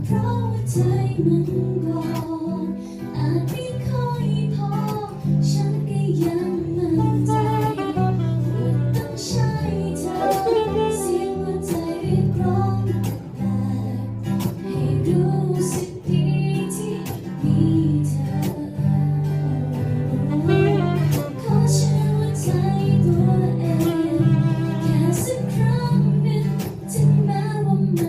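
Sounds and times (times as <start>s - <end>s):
band playing pop music: 7.3s - 12.0s, 19.8s - 21.8s.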